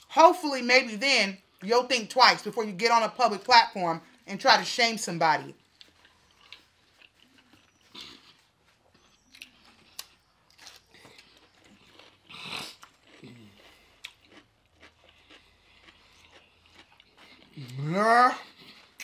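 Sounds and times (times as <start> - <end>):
chewing and wet mouth sounds: 5.5 - 19.0.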